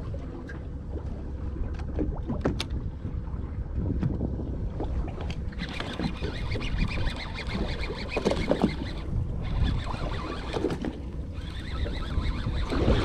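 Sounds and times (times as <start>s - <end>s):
steady low rumble: 0.0s - 5.6s, 9.0s - 10.2s.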